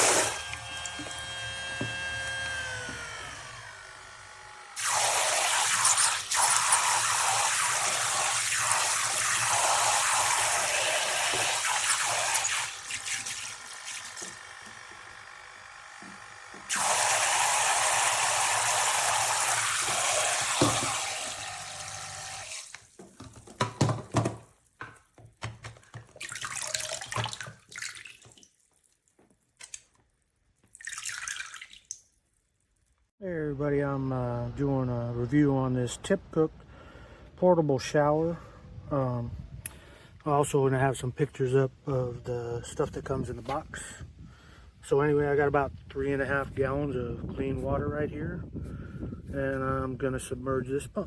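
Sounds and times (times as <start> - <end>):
shower head spraying water: 4.8 - 14.4, 16.7 - 22.8.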